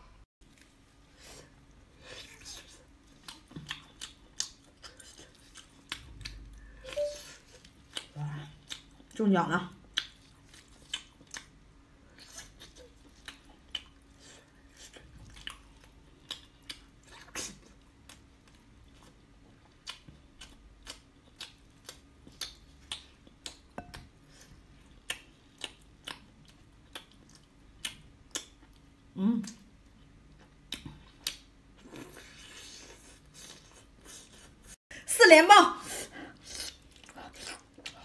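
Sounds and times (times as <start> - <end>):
wet chewing clicks and smacks: 2.3 - 6.7, 7.5 - 9.2, 9.8 - 11.6, 12.2 - 14.2, 14.8 - 24.1, 25.0 - 32.1.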